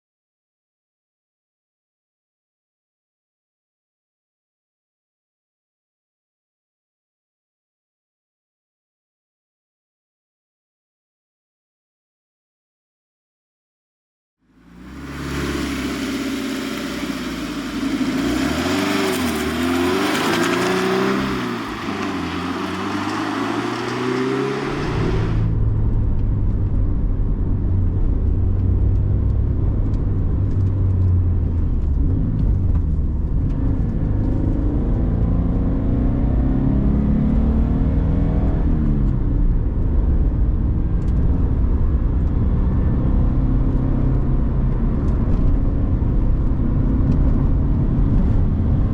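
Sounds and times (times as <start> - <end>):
car engine revving: 14.5 - 25.5.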